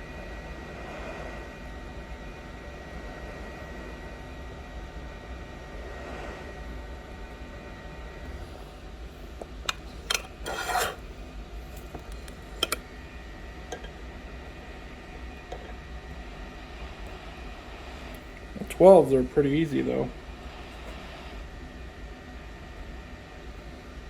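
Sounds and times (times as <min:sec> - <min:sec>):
steady machine hum: 0:00.0 - 0:24.0
tool scraping glass: 0:09.7 - 0:11.0, 0:11.8 - 0:12.8, 0:13.7 - 0:13.9.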